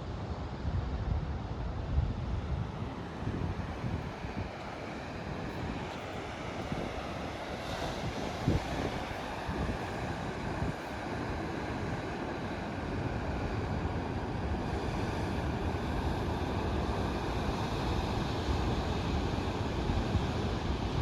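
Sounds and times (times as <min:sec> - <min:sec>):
wind buffeting microphone: 0:00.6 - 0:10.9
ocean surf washing: 0:02.3 - 0:21.0.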